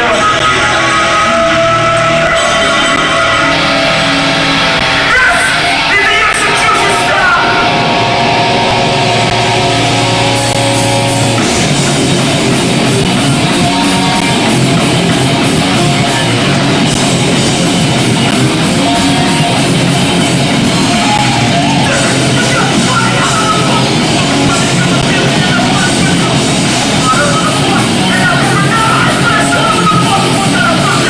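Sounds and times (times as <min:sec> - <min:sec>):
shouted vocals: 0:00.0 - 0:11.0, 0:17.8 - 0:31.0
bass guitar: 0:00.0 - 0:31.0
distorted guitars: 0:00.0 - 0:31.0
drums: 0:00.0 - 0:31.0.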